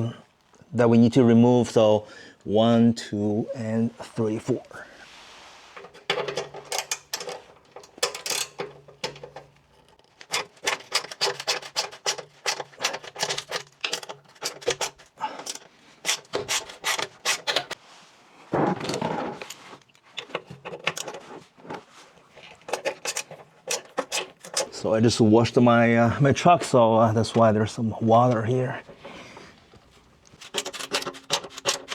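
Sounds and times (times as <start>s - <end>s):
scraping: 26.2s - 31.9s.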